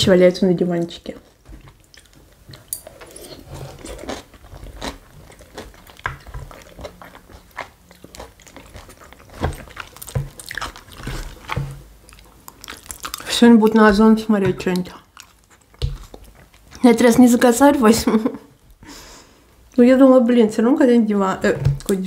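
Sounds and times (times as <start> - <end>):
person chewing crunchy food: 1.2 - 17.5.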